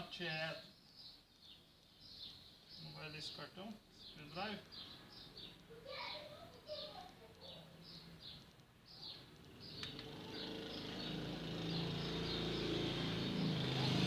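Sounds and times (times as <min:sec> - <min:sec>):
bird chirping: 0:00.0 - 0:14.0
sharp click: 0:09.4 - 0:10.1
engine hum: 0:09.4 - 0:14.0.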